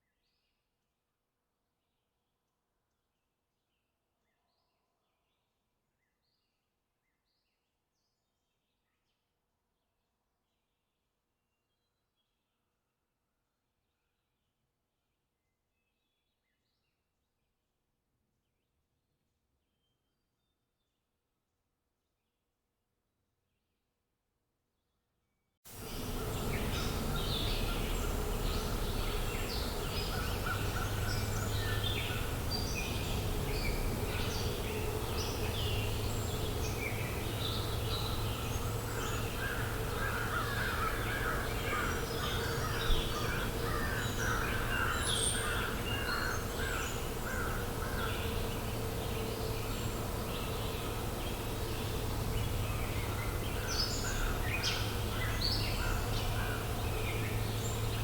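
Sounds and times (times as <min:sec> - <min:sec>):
low outdoor background hum: 0:25.7 - 0:58.0
crows cawing: 0:25.8 - 0:49.1, 0:50.0 - 0:57.7
songbirds chirping and singing: 0:25.8 - 0:58.0.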